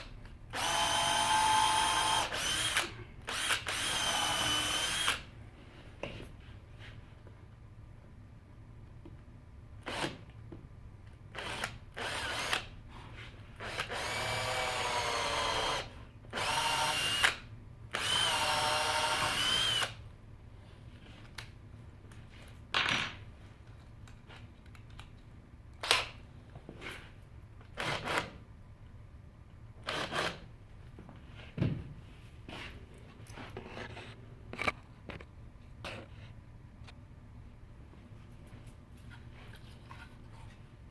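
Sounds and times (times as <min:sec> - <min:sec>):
drill trigger pulls: 0:00.6 - 0:05.2, 0:18.0 - 0:20.0
power drill motor whining: 0:00.6 - 0:05.2, 0:13.6 - 0:17.4, 0:18.0 - 0:20.0.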